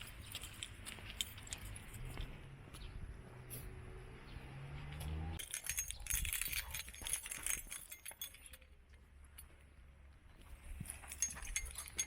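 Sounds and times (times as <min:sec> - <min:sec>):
metallic jangling and clinking: 0:00.0 - 0:02.3, 0:05.4 - 0:09.7, 0:10.8 - 0:12.0.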